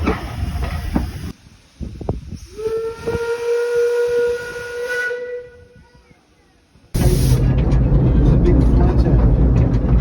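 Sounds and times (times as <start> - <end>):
train rumbling and clicking: 0.0 - 1.4, 7.0 - 10.0
steam locomotive whistle: 2.4 - 5.8.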